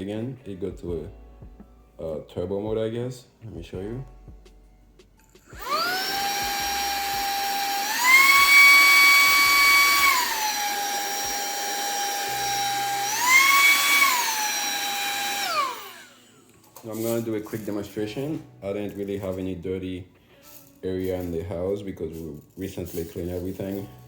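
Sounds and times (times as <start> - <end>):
handheld vacuum motor whine: 5.5 - 17.2.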